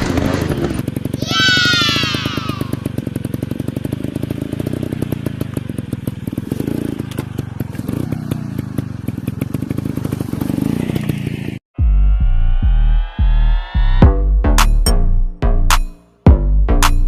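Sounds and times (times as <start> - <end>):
dirt bike engine running: 0.0 - 11.6
loud electronic music: 11.8 - 17.0.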